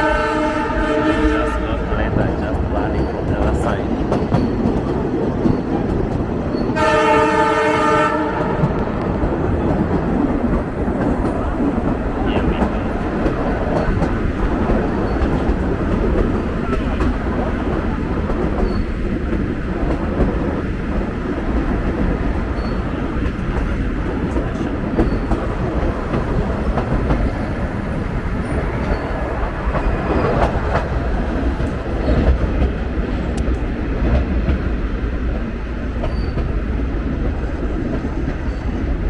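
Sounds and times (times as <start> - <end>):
train rumbling on rails: 0.0 - 39.0
train wheels clicking: 8.4 - 38.6.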